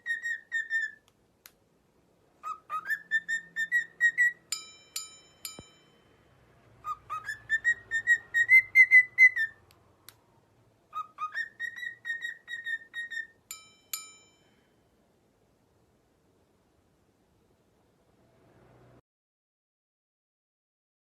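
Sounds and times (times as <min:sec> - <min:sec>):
parrot whistling a tune: 0:00.0 - 0:01.0, 0:02.4 - 0:04.6, 0:06.8 - 0:09.6, 0:10.9 - 0:13.4
small bell-like ringing strikes: 0:04.5 - 0:06.4, 0:13.5 - 0:14.7.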